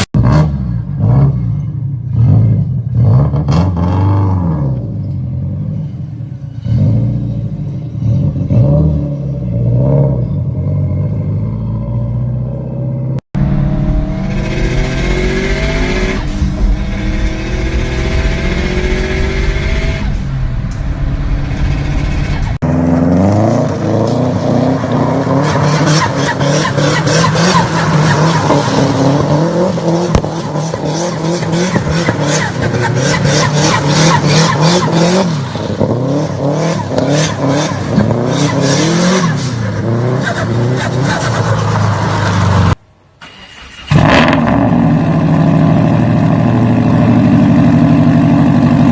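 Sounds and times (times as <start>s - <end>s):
car engine revving: 13.1s - 48.9s
rapid exhaust crackle: 13.4s - 42.8s.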